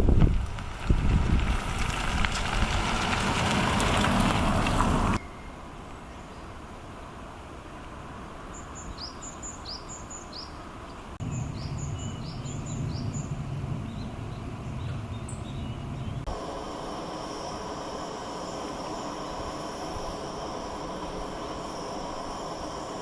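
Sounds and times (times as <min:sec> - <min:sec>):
steady outdoor hiss: 0:00.0 - 0:23.0
bird chirping: 0:05.2 - 0:06.5, 0:08.5 - 0:16.3
low rumble: 0:11.2 - 0:16.4.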